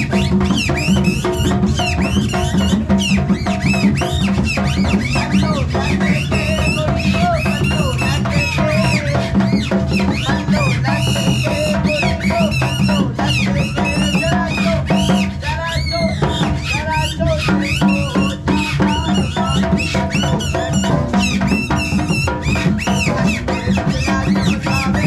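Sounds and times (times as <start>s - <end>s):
drum beating fast rhythm: 0.0s - 25.0s.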